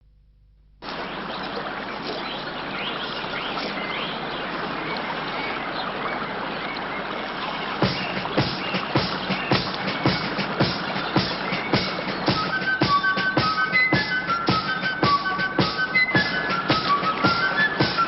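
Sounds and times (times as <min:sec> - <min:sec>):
running water: 0:00.8 - 0:18.0
faint bird chirps: 0:00.9 - 0:18.0
sharp drum hits: 0:07.8 - 0:13.6.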